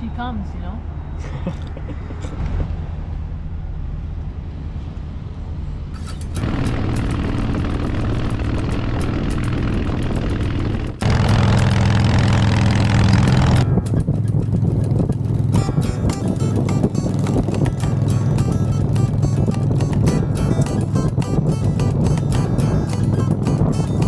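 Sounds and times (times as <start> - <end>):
wind noise: 1.0 - 24.0
motorcycle engine running: 6.0 - 24.0.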